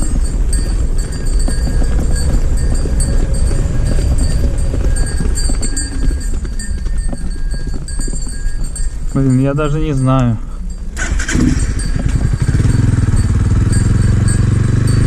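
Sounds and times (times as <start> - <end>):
cattle hooves clopping on road: 0.0 - 15.0
motorcycle engine idling: 11.0 - 15.0.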